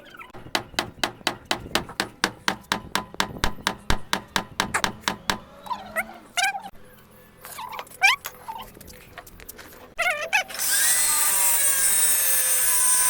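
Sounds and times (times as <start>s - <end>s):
rapid even knocking: 0.4s - 5.5s.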